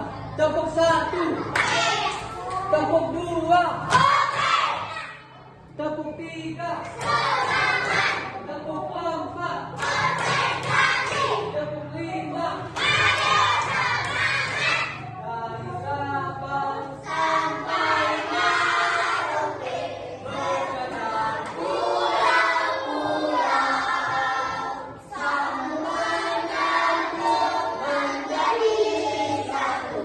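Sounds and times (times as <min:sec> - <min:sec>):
children singing in unison: 0:06.8 - 0:08.5, 0:09.7 - 0:11.6, 0:12.6 - 0:15.2, 0:16.7 - 0:30.0.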